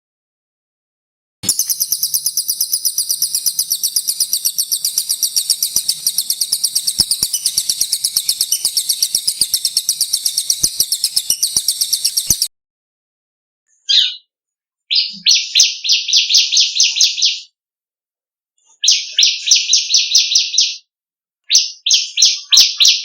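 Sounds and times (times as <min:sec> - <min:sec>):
songbird high-pitched trill: 0:01.4 - 0:12.5.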